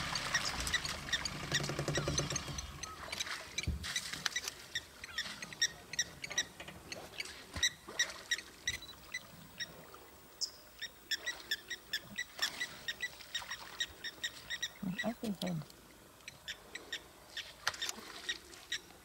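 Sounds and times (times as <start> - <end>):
bird squeaky calls: 0.1 - 9.8, 10.4 - 15.3.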